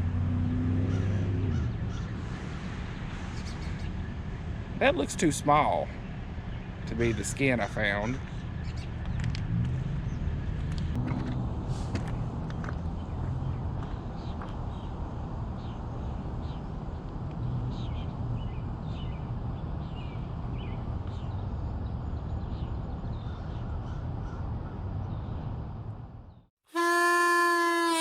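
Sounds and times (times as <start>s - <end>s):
birds chirping: 4.8s - 11.0s.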